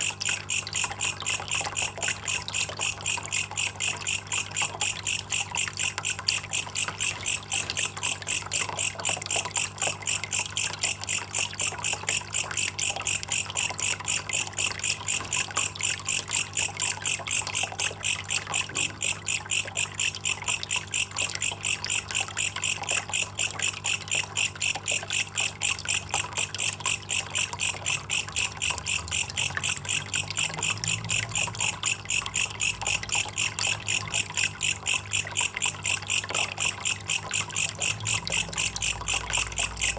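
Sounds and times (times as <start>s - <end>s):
katydid high-pitched chirps: 0.3s - 39.9s.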